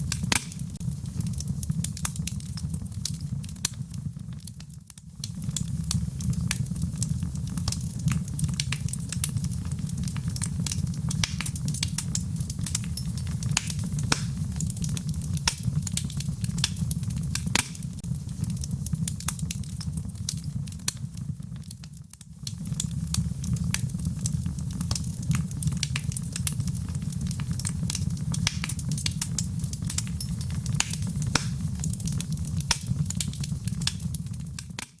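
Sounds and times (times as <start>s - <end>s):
fire crackling and popping: 0.0s - 35.0s
fire rumbling: 0.0s - 35.0s.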